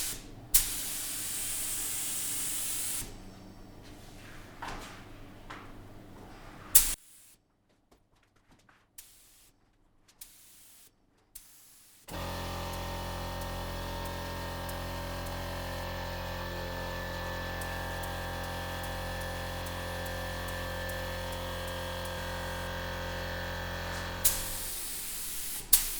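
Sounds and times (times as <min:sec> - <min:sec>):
hissing spray: 0:00.0 - 0:03.2, 0:06.7 - 0:07.3, 0:17.6 - 0:25.9.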